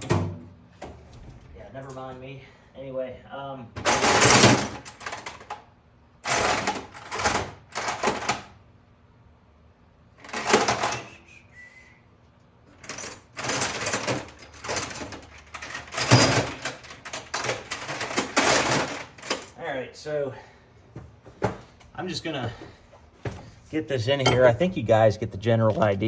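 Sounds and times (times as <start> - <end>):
metal tools clattering: 3.8 - 5.5, 10.2 - 11.2, 12.8 - 19.6, 24.1 - 24.8.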